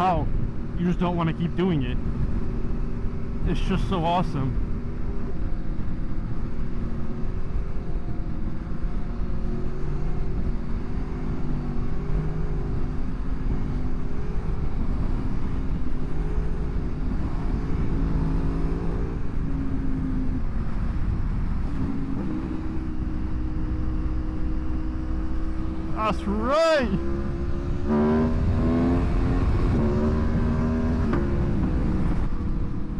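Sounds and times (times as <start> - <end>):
motorcycle engine revving: 9.5 - 26.0, 26.9 - 32.4.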